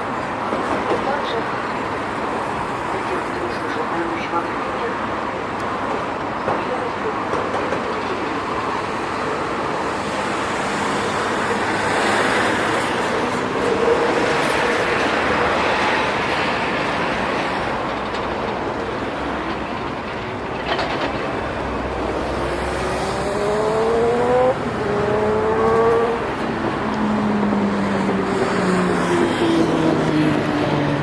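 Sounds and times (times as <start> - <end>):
road traffic noise: 0.0 - 31.0
vehicle engine accelerating: 22.1 - 26.4.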